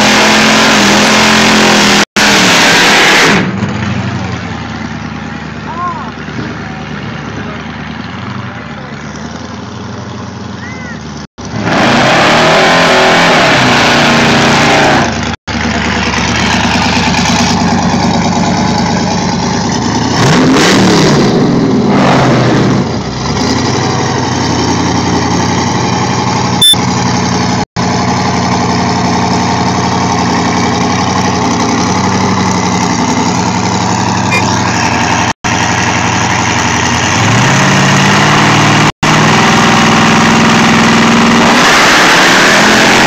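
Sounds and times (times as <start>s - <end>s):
drag race car engines revving: 0.0s - 43.0s
muscle car engine idling: 15.5s - 20.1s, 24.4s - 37.2s.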